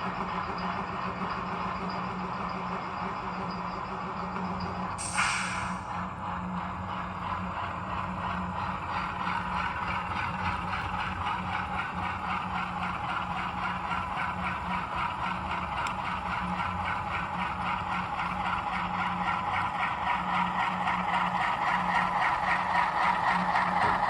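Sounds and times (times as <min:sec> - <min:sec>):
diesel engine sound from small speaker: 0:00.0 - 0:24.0.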